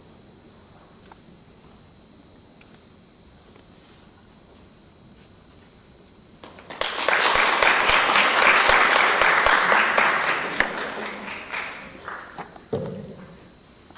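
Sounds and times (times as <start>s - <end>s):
audience applause: 6.4s - 12.4s.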